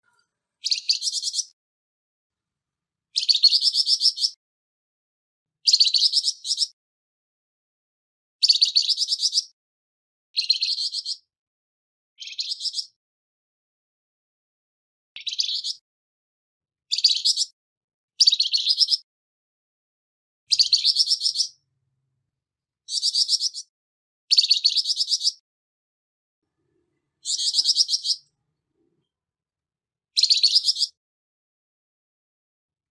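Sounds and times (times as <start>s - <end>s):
bird harsh rasping chatter: 0.1s - 1.5s, 20.5s - 21.6s, 22.9s - 23.7s, 27.2s - 28.2s.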